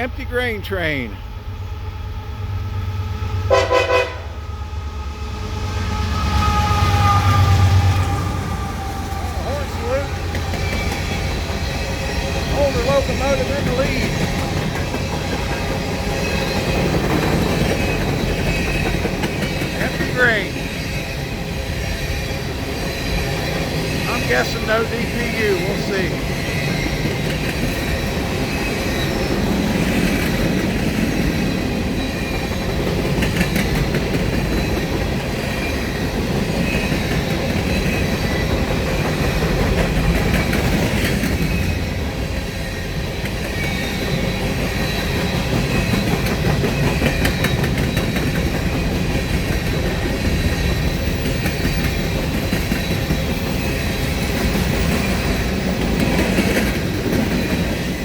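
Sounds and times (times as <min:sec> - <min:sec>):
high ringing of wheels on rails: 0:01.3 - 0:58.0
train wheels clicking over rail joints: 0:08.8 - 0:58.0.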